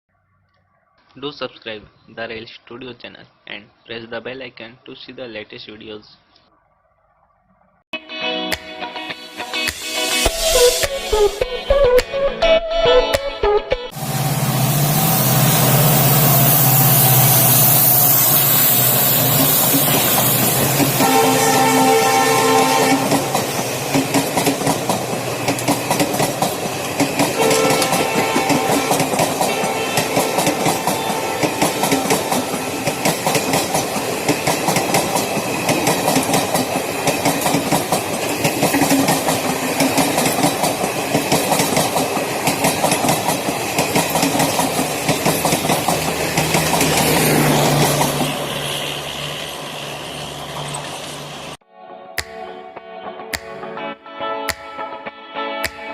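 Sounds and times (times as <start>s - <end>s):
train passing at high speed: 13.9s - 51.6s
wheel clatter over rail joints: 23.2s - 51.4s.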